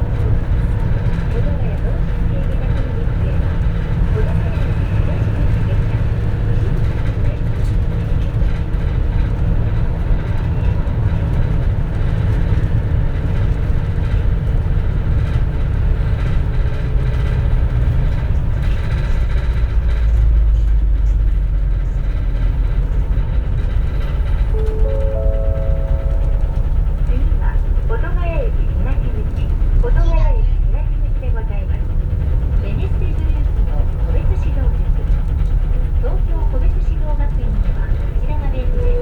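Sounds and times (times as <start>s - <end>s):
bus engine and road rumble: 0.0s - 39.0s
rising three-note chime: 24.6s - 27.0s.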